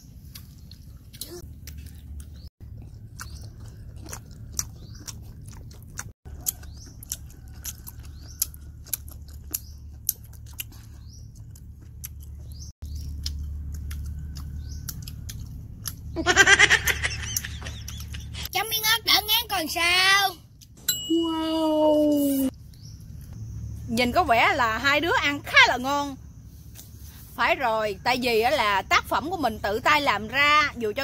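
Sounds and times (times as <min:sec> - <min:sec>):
wet chewing and mouth smacks: 0:00.0 - 0:16.2
bird chirps: 0:17.0 - 0:18.4, 0:21.1 - 0:31.0.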